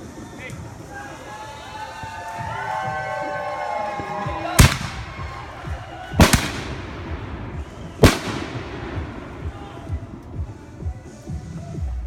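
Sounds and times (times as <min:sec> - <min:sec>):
fireworks banging: 0:04.5 - 0:11.2
low rumbling: 0:04.6 - 0:11.1.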